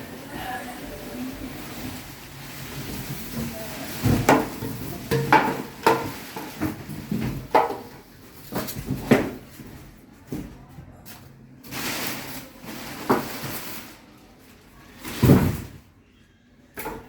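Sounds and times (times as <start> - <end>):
rustling: 1.4 - 7.5, 11.6 - 15.6.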